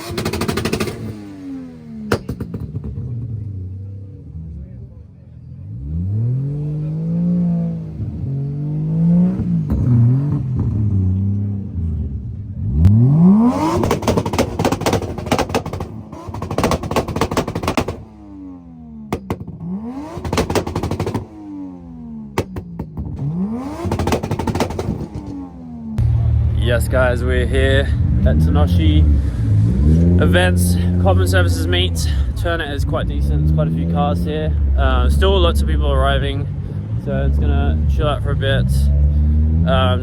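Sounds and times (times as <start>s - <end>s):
car engine accelerating: 0.0s - 40.0s
rapid crackling clatter: 13.6s - 18.0s, 20.2s - 21.2s, 23.8s - 25.3s.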